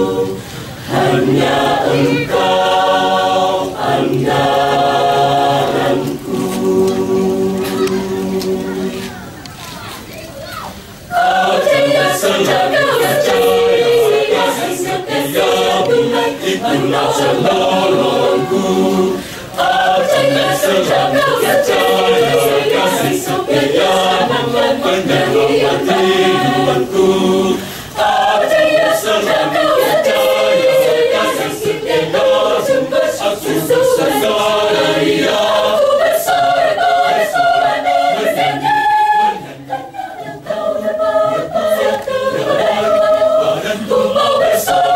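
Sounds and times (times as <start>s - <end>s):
choir singing: 0.0s - 9.4s, 11.0s - 44.9s.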